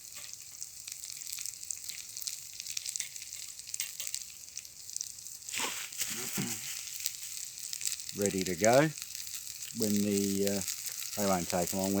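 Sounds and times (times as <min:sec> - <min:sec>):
campfire pops and crackles: 0:00.0 - 0:12.0
sausages sizzling on a grill: 0:00.0 - 0:12.0.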